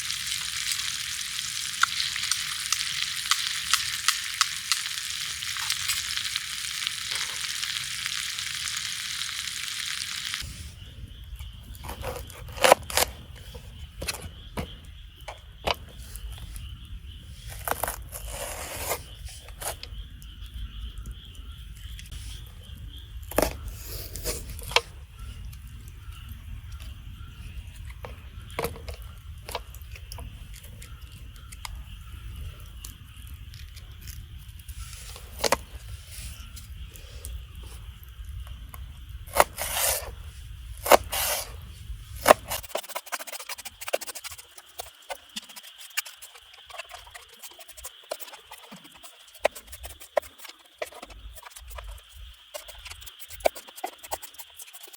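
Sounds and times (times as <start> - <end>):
wood fire snapping: 0.0 - 10.4.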